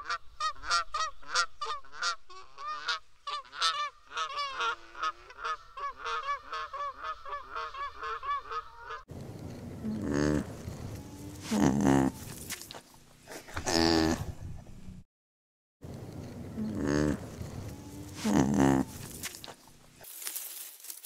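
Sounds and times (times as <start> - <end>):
swans honking: 0.0 - 9.0
low animal sound: 9.6 - 14.4, 16.2 - 20.0.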